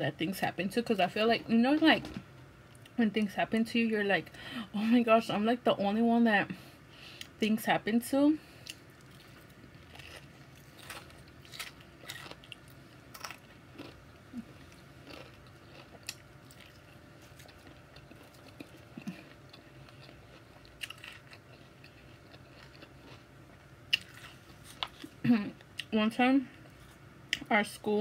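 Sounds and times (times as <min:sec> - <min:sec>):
small crunches: 0:08.6 - 0:23.2
person chewing salad: 0:08.6 - 0:25.9.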